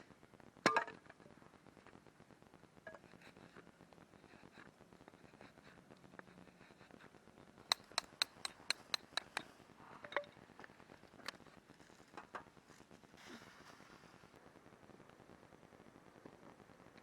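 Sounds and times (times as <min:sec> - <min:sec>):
sharp clicks: 0:07.7 - 0:09.4.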